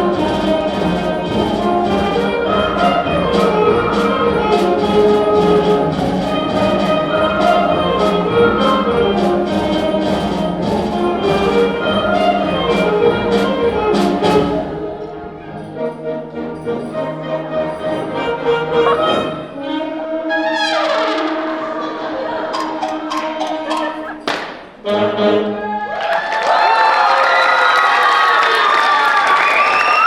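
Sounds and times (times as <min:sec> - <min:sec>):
percussion beat: 0:00.0 - 0:14.9, 0:17.7 - 0:19.6, 0:22.5 - 0:24.8
sustained band chords: 0:00.0 - 0:25.6
band playing brass: 0:00.0 - 0:25.8.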